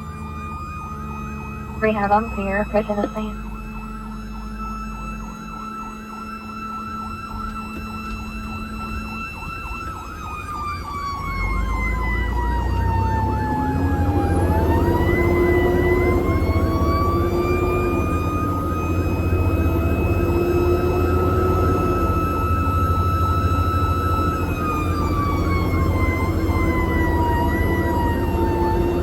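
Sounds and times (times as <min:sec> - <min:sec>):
siren tone falling and rising: 0:00.0 - 0:29.0
siren yelp warbling: 0:00.0 - 0:29.0.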